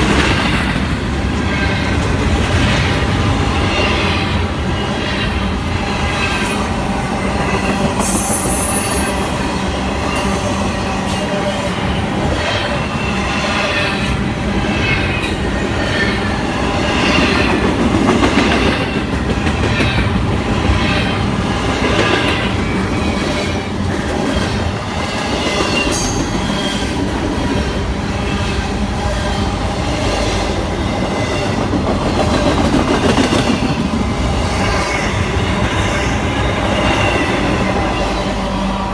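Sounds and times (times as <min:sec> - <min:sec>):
wheels clacking and squealing: 0:00.0 - 0:30.5
train wheels rumbling on rails: 0:00.0 - 0:38.9.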